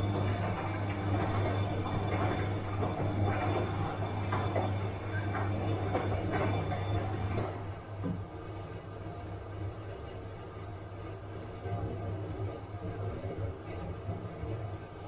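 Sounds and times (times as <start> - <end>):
faint high whine: 0.0 - 7.7
washing machine motor hum: 0.0 - 15.0.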